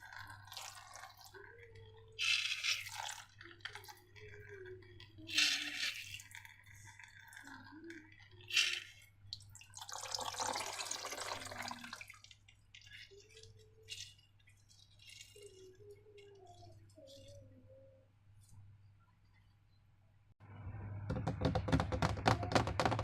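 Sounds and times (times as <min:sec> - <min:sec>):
slime dripping and pouring: 0:00.0 - 0:17.3.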